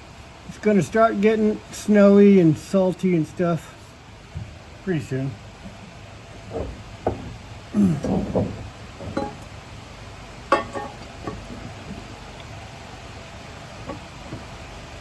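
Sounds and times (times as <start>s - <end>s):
metallic clinks and knocks: 6.5s - 9.5s, 10.5s - 11.7s.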